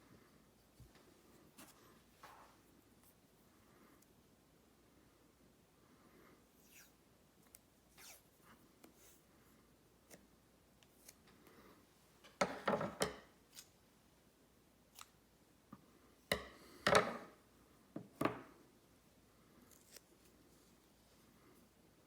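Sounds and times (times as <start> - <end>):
razor blade scraping on whetstone: 8.0 - 8.2.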